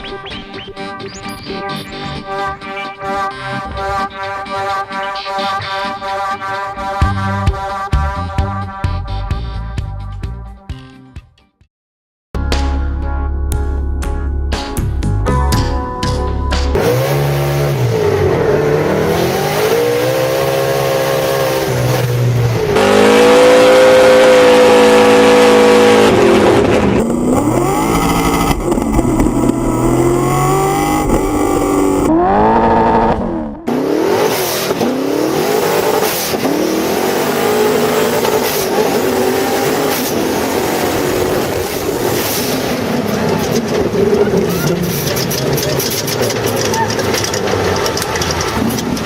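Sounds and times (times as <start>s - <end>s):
car engine revving hard: 16.8s - 46.3s.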